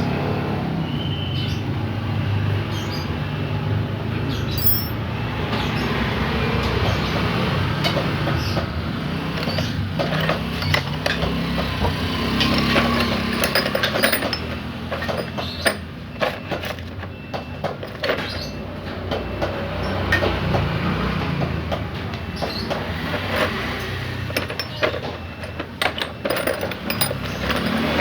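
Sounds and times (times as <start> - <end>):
hand tools clinking on metal: 4.6 - 5.0, 12.4 - 16.4, 24.2 - 28.0.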